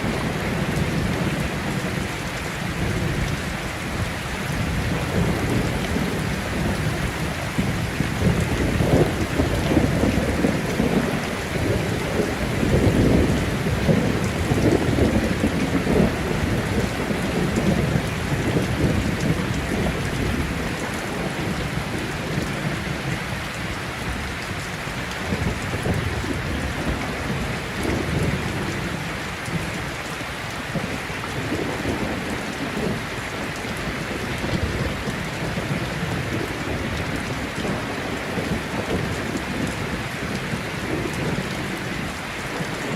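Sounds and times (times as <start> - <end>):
thunder rumbling: 0.0 - 29.8
heavy rain falling: 0.0 - 42.9.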